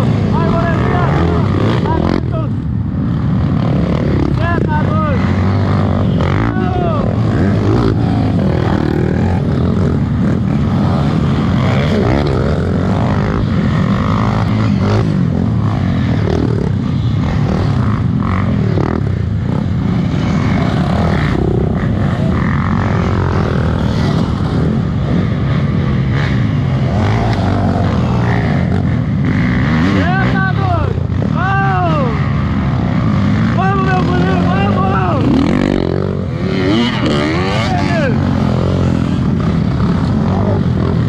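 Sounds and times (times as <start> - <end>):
motorcycle engines revving: 0.0 - 41.0.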